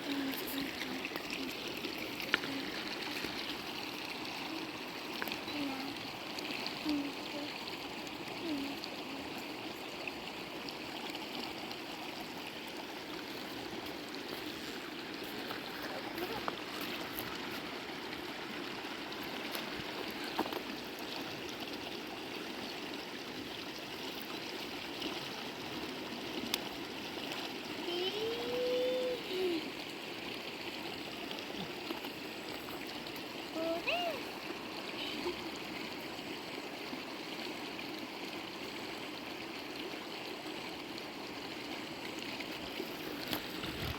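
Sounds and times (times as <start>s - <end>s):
stream water flowing: 0.0s - 43.9s
faint ticks: 26.5s - 26.7s.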